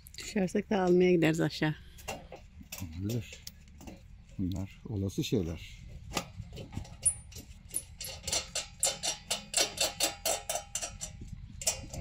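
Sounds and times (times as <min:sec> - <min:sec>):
metallic clicking and tapping: 0:06.2 - 0:12.0.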